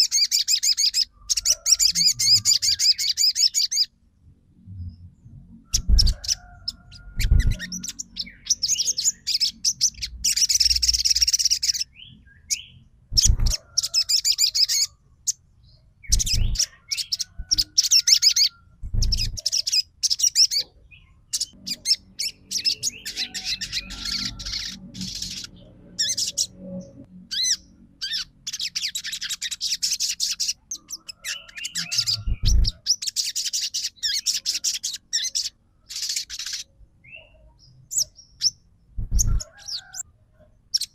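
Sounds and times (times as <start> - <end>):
songbird chattering trills: 0.0 - 3.9, 5.8 - 15.4, 16.1 - 26.6, 27.3 - 40.0
dull low thumps: 32.3 - 32.8, 39.0 - 39.4.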